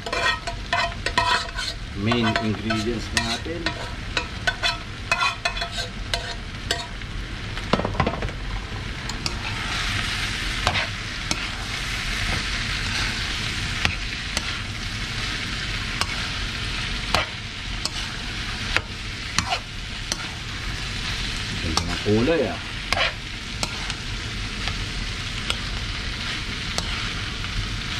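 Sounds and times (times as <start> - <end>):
metal ladle scraping pan: 0.0 - 6.9, 18.8 - 20.4
meat sizzling in oil: 0.0 - 27.9.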